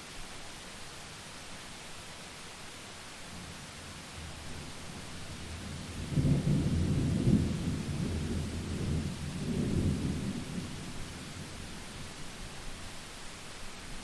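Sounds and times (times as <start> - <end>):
steady rain: 0.0 - 14.0
thunder rolling: 5.9 - 11.2.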